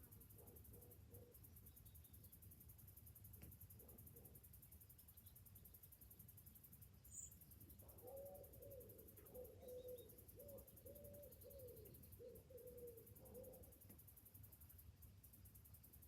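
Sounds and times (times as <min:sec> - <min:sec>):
cicadas droning: 0:00.0 - 0:16.0
bird hooting: 0:07.8 - 0:13.8.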